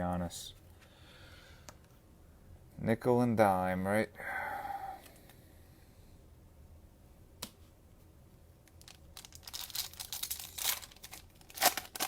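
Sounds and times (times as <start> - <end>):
cellophane wrapper tearing and crinkling: 8.7 - 12.0.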